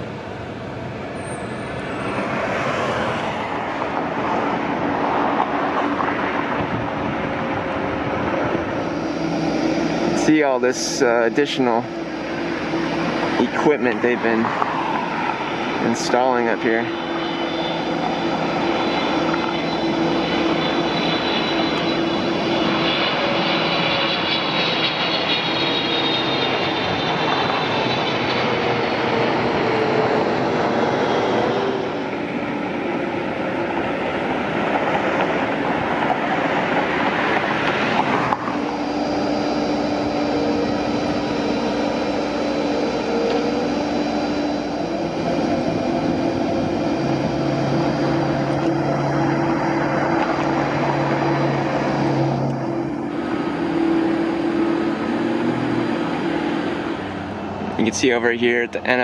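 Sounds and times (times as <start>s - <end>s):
plane passing overhead: 0.0s - 59.0s
faint high whine: 6.6s - 29.6s, 37.4s - 59.0s.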